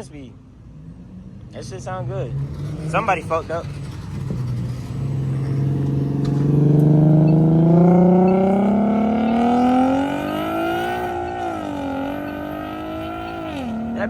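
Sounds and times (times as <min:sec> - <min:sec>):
car engine accelerating hard: 0:00.6 - 0:14.0.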